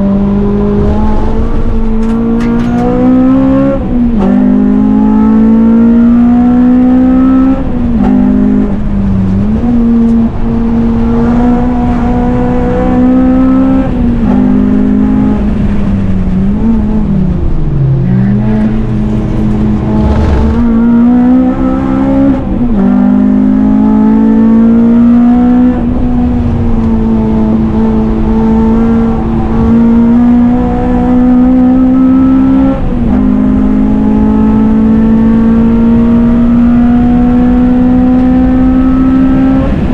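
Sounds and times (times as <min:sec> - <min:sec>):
car engine revving through gears: 0:00.0 - 0:08.8, 0:18.1 - 0:39.9.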